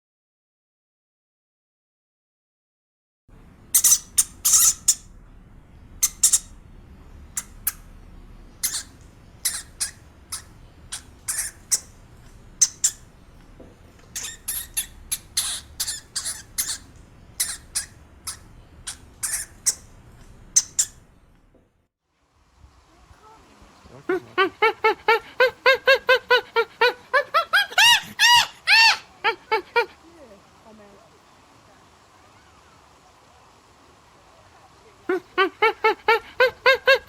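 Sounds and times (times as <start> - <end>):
faint low hum: 3.3 - 37.0
small animal squeaking: 3.7 - 5.1, 6.0 - 6.6, 7.3 - 7.9, 8.5 - 13.2, 14.0 - 21.1, 27.6 - 29.1.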